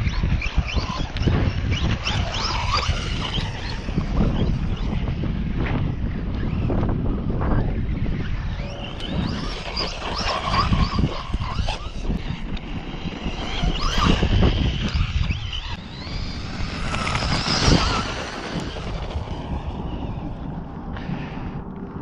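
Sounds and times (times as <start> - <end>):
toy truck motor whining: 0.0 - 5.0, 8.0 - 19.5
wind on microphone: 0.0 - 22.0.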